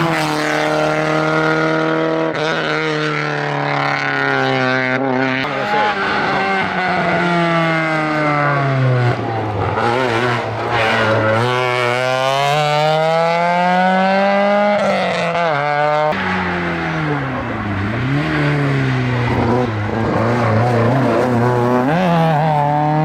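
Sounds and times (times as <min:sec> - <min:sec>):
car engine at full throttle: 0:00.0 - 0:23.0
another car's engine: 0:05.4 - 0:23.0
gear change: 0:16.2 - 0:22.1.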